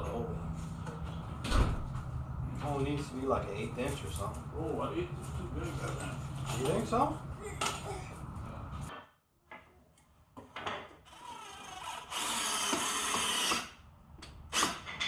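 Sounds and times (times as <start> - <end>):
power drill boring into wood: 11.1 - 13.8, 14.5 - 14.8.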